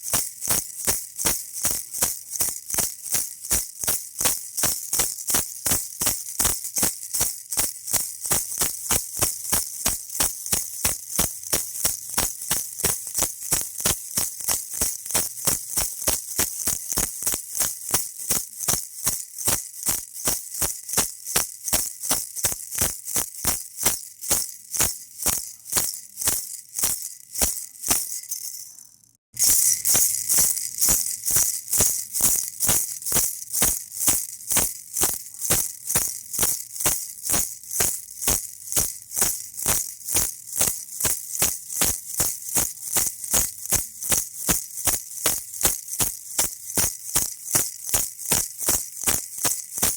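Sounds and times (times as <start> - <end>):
baby rattle shaking: 0.0 - 49.9.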